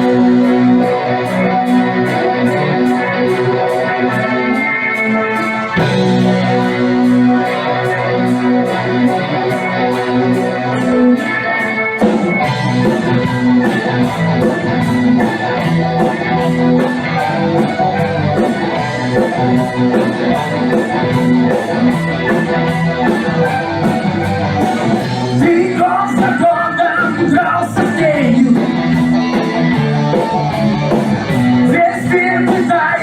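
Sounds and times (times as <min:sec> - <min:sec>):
bass: 0:00.0 - 0:33.0
guitars playing: 0:00.0 - 0:33.0
steady drum beat: 0:12.0 - 0:33.0.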